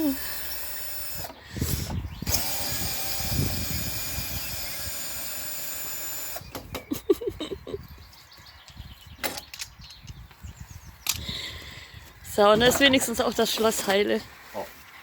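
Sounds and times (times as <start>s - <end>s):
power drill running: 0.0s - 6.5s.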